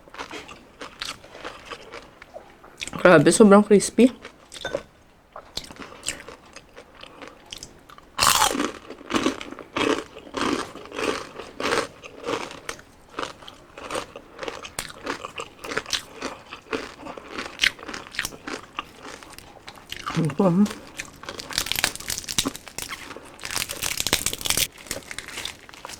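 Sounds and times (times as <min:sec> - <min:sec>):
crisp chewing crunches: 0:05.4 - 0:25.9
crunching bite: 0:07.1 - 0:20.2, 0:20.9 - 0:25.9.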